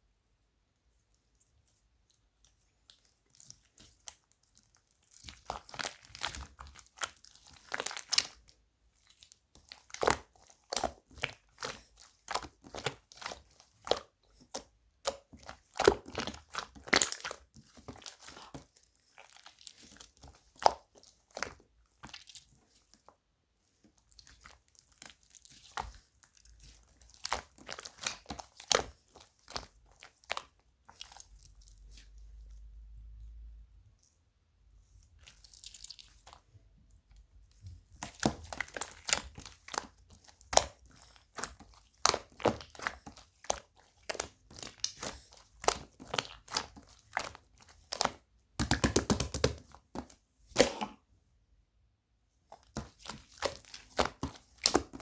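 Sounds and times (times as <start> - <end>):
slime crackling and popping: 3.4 - 22.5, 37.9 - 51.0, 52.6 - 55.0.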